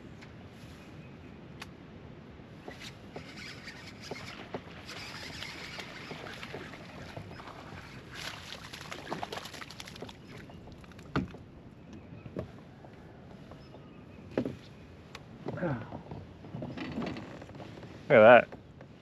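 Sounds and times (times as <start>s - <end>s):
steady water wash: 3.1s - 11.4s.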